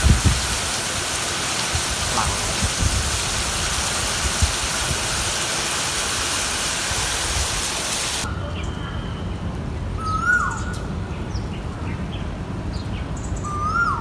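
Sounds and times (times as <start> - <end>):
steady rain falling: 0.0 - 8.3.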